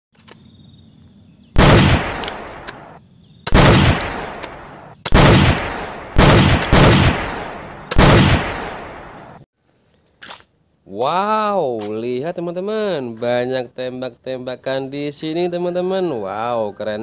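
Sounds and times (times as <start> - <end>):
loud gunshots: 1.6 - 9.4.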